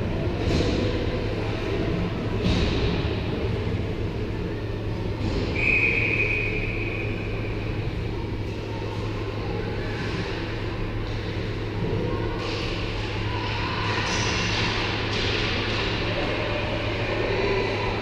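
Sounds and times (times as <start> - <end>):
low rumble and hum: 0.0 - 18.0
sharp whistle blast: 5.5 - 7.3.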